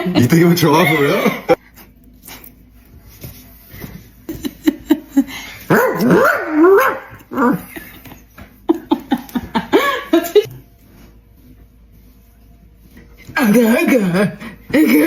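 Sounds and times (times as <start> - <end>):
dog yapping and barking: 5.7 - 7.6
dog yipping: 5.7 - 7.6.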